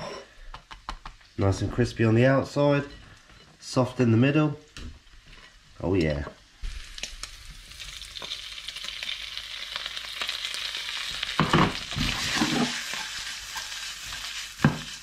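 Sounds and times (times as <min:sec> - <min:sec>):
food sizzling in a pan: 0:05.0 - 0:15.0
pan knocking and scraping: 0:11.4 - 0:12.8.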